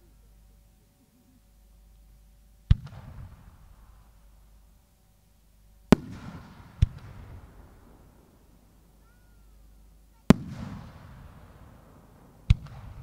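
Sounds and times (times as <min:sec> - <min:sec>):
firework bangs echoing: 0:05.9 - 0:08.8, 0:10.2 - 0:13.0.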